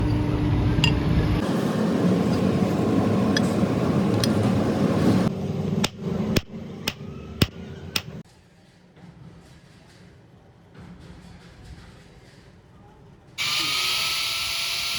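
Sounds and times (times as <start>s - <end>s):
hammer striking steel: 5.8s - 8.2s.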